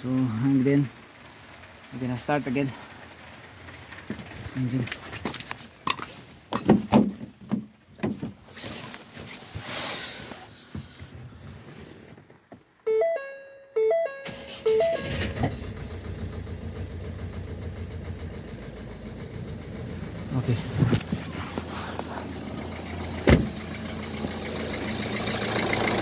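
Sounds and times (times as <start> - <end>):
diesel engine starting and idling: 0.0 - 6.9, 9.4 - 26.0
clatters: 0.1 - 9.6
two-note dashboard chime: 12.9 - 15.1.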